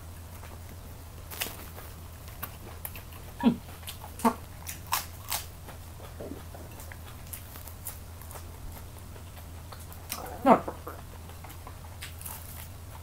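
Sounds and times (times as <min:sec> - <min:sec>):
chewing crispy food: 0:00.1 - 0:13.0
loud crunches: 0:01.2 - 0:06.2.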